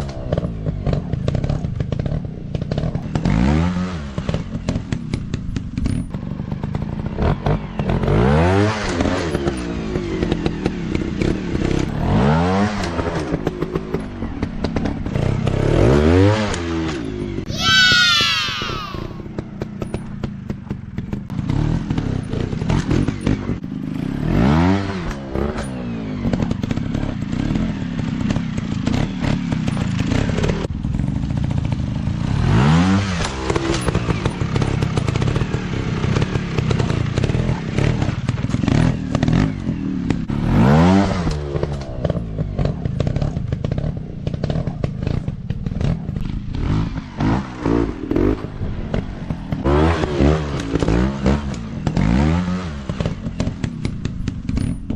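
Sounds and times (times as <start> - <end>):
dirt bike engines revving: 0.0 - 54.9.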